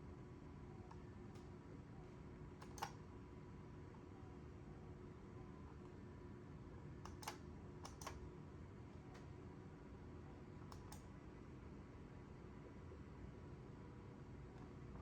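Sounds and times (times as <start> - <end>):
computer clicks: 2.6 - 3.0, 7.0 - 8.2, 10.6 - 11.1.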